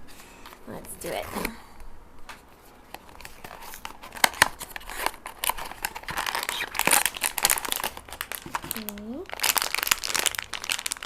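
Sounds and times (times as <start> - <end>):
wrapping crinkling and tearing: 2.8 - 11.0
packaging snapping: 2.9 - 11.0.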